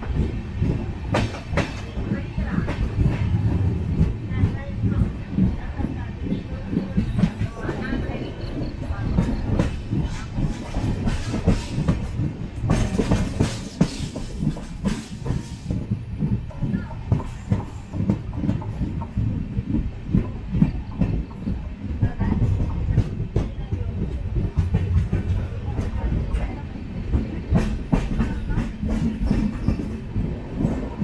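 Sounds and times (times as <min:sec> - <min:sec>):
train low rumble: 0:00.0 - 0:31.0
train wheels clattering over rail joints: 0:00.0 - 0:31.0.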